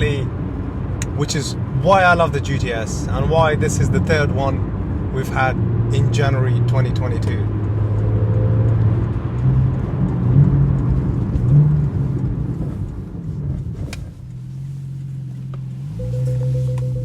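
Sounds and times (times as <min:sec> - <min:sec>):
car engine revving: 0:00.0 - 0:13.1, 0:14.1 - 0:17.0
parking sensor tone: 0:15.8 - 0:17.0.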